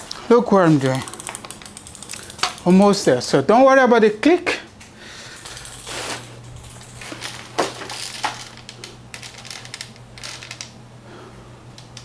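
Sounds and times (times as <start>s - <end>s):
torque wrench clicks: 0.8s - 3.4s.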